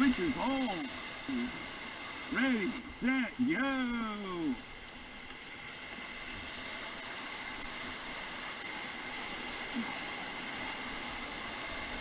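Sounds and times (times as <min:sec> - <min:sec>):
whitewater rushing: 0:00.0 - 0:12.0.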